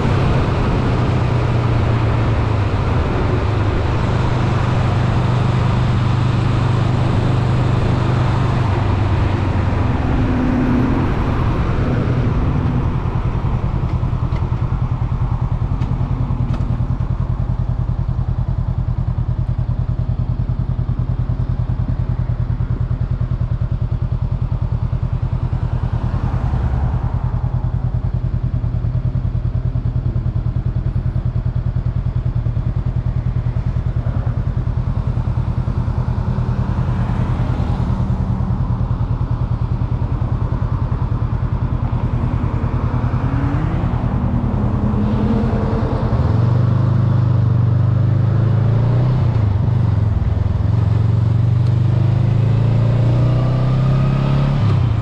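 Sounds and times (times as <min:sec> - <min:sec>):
passing traffic: 0:00.0 - 0:55.0
motorcycle engine idling: 0:12.2 - 0:48.3.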